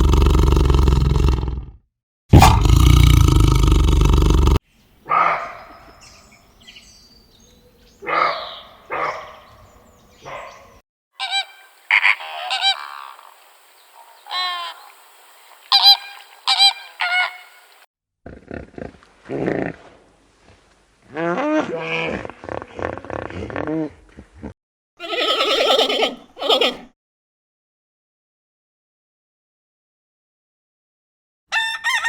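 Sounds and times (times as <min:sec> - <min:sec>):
loud animal sound: 0:02.3 - 0:06.2, 0:08.0 - 0:15.0
fowl calling: 0:11.2 - 0:17.8, 0:31.5 - 0:32.0.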